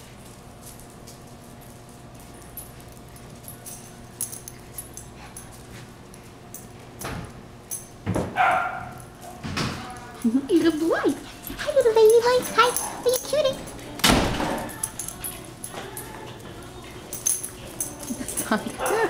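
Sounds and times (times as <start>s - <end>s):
puppies playing: 0.0s - 19.0s
steady low hum: 0.0s - 19.0s
small dog sounds: 17.8s - 19.0s.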